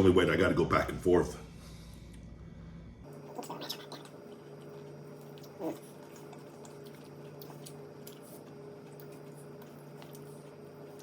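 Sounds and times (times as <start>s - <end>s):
person chewing: 3.2s - 11.0s.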